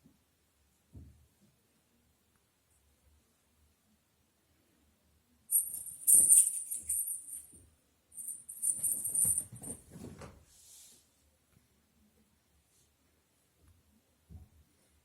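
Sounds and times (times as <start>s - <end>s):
cat toy bell jingling: 5.5s - 7.6s, 8.2s - 9.8s.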